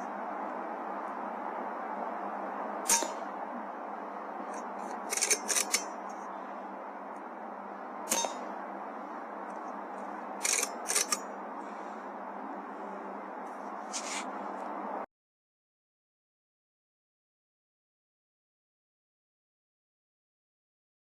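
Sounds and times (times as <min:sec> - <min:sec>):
air rifle shots: 0:02.8 - 0:03.3, 0:08.1 - 0:08.5
quick clicks: 0:10.4 - 0:11.2.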